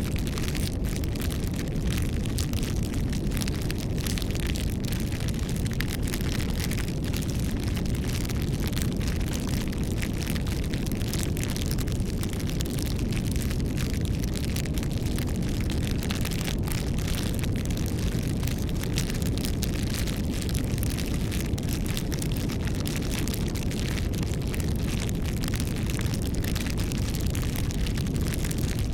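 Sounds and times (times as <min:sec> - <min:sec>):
fire crackles and pops: 0:00.0 - 0:28.9
low rush of flame: 0:00.0 - 0:28.9.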